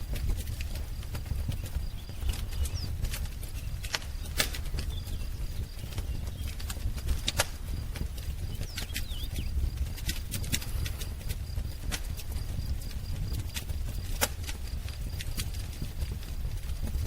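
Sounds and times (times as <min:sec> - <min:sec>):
wood fire crackling: 0:00.0 - 0:17.0
faint bird chirps: 0:01.3 - 0:06.6, 0:08.4 - 0:09.7.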